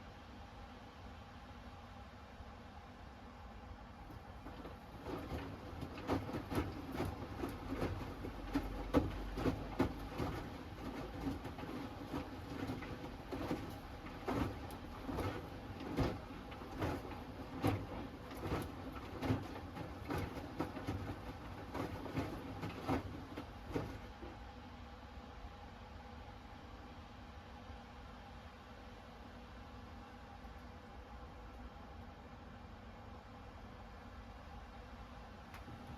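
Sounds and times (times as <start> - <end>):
washing machine drum tumbling: 4.2 - 24.5, 35.6 - 35.9.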